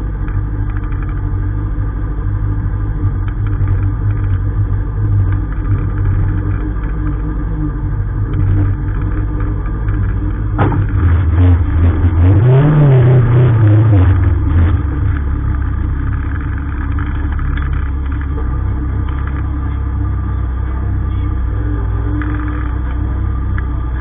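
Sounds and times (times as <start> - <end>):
car engine revving: 0.0 - 24.0
sharp clunk: 10.6 - 11.0.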